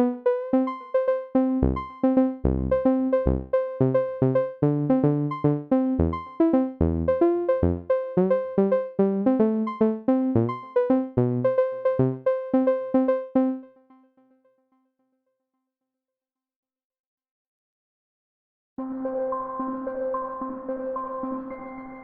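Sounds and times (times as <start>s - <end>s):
electronic piano-like synth notes: 0.0s - 13.7s
synth bass notes: 1.6s - 13.6s.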